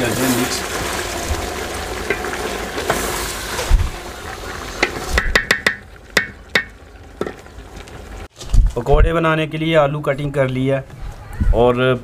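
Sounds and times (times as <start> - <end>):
food sizzling in a metal pot: 0.0 - 8.3
spatula knocking on pot: 4.8 - 7.4.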